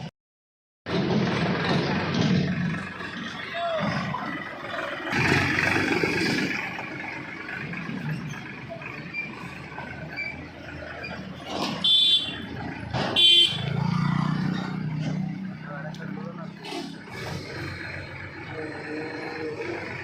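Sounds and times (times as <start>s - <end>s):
heavy machinery engines: 0.9s - 20.0s
vehicle horn toots: 11.7s - 12.5s, 13.1s - 13.9s.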